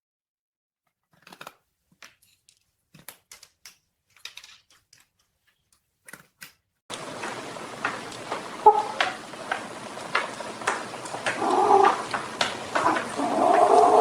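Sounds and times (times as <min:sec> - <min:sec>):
faint clicks and scratches: 0:01.1 - 0:14.0
steady hiss: 0:06.9 - 0:14.0.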